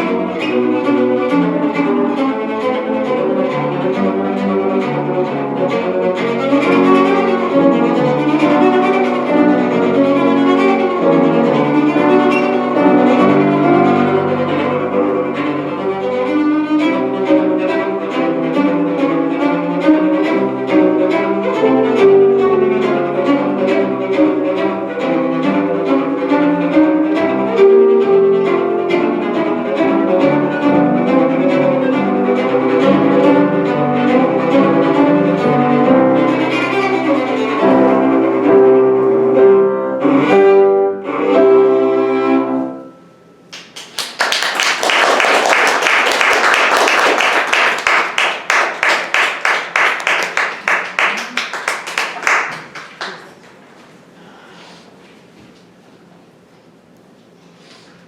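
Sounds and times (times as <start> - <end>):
bowed strings with cello: 0.0 - 43.1.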